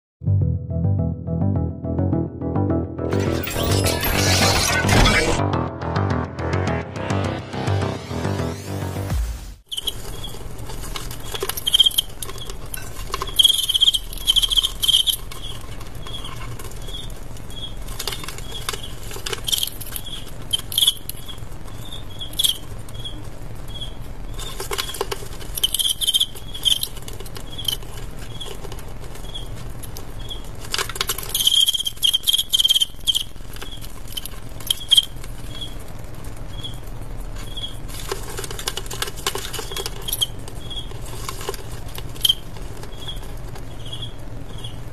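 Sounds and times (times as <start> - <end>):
scratchy scraping and rustling: 9.7 - 44.9
crickets chirping: 13.3 - 17.8, 25.5 - 28.5.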